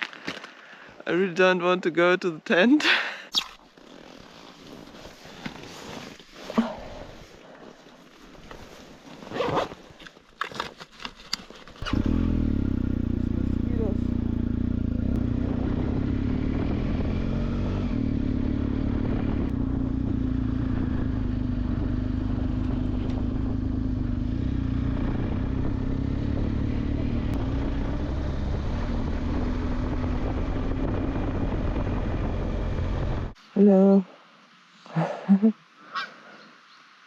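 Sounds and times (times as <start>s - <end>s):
road and wind noise: 3.7s - 34.7s
motorcycle engine running: 11.8s - 33.4s.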